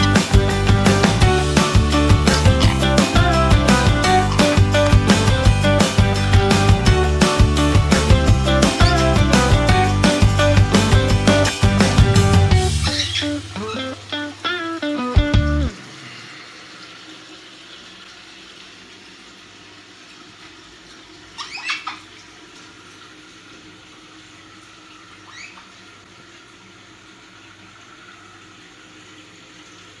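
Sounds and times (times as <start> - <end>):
guitar music: 0.0 - 15.8
parrot chirps: 12.8 - 14.0, 21.3 - 22.1, 25.2 - 25.7.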